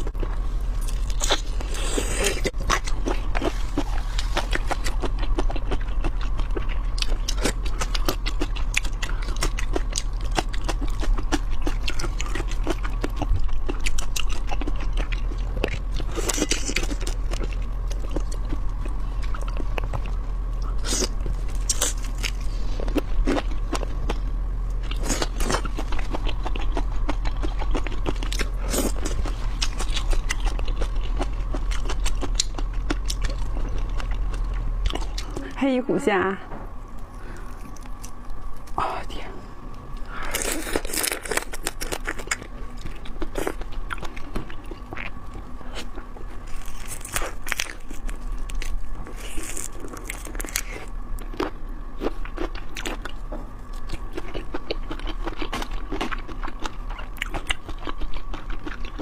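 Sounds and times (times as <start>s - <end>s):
wet chewing and biting: 0.0s - 35.4s, 40.0s - 59.0s
low hum: 0.0s - 59.0s
loud crunches: 40.0s - 53.2s.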